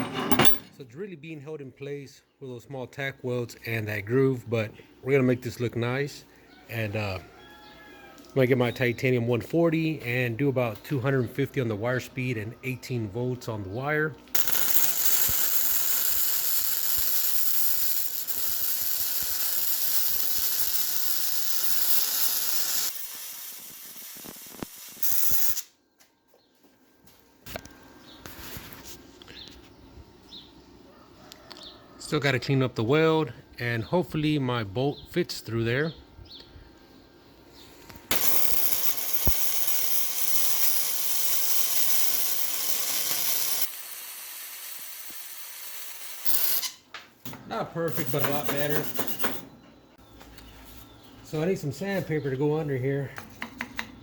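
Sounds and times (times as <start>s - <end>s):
power grinder grinding metal: 14.4s - 25.6s, 38.1s - 46.7s
welding arc crackling and hissing: 14.4s - 25.7s, 38.1s - 46.8s.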